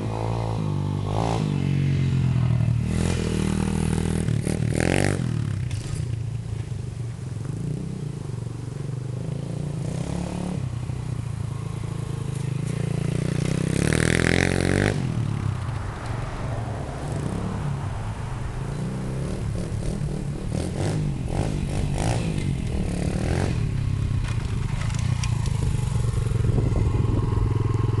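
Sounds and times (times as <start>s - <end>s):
motorbike engine revving: 11.6s - 15.4s, 18.7s - 28.0s.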